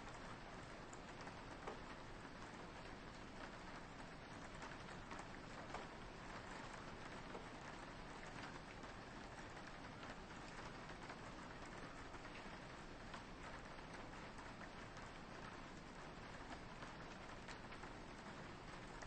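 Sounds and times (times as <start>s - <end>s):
rain on a window: 0.0s - 19.0s.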